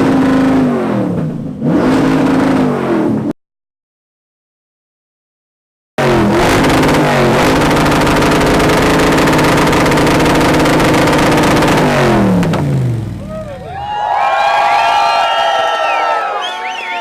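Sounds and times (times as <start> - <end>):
car engine revving: 0.0 - 3.3, 6.0 - 14.0.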